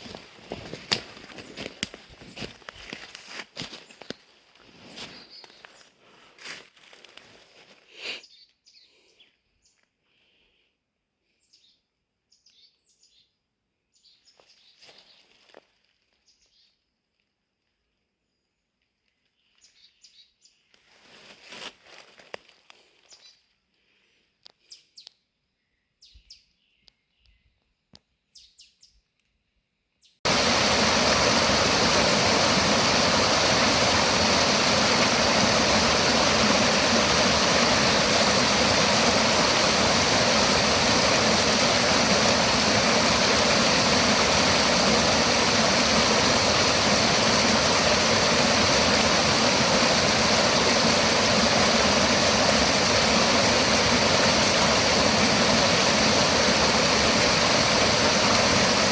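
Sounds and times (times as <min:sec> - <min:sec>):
faint bird chirps: 0:08.2 - 0:10.0, 0:11.3 - 0:15.3
rustle: 0:20.7 - 0:23.4
loud steady rushing noise: 0:30.3 - 0:58.9.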